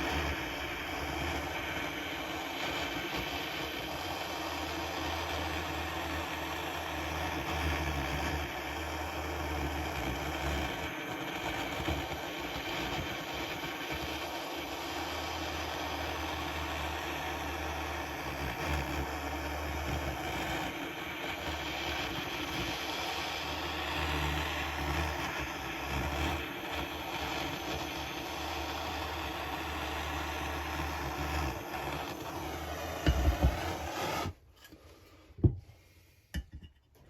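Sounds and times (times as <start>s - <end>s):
gas blowtorch burning: 0.0s - 34.7s.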